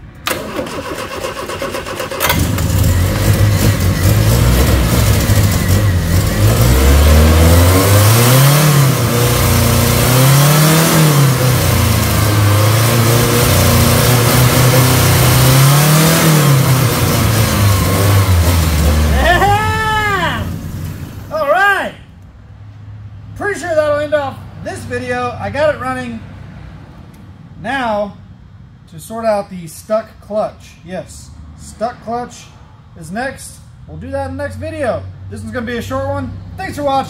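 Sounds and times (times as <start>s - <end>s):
car engine starting and revving: 0.2s - 21.4s.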